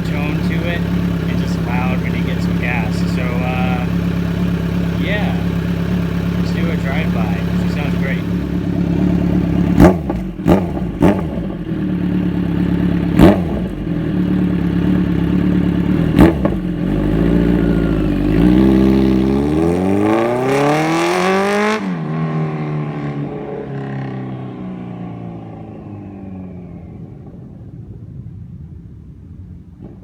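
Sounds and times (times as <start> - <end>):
exhaust cracks: 0.0 - 20.4
motorcycle exhaust drive-by: 0.0 - 30.0.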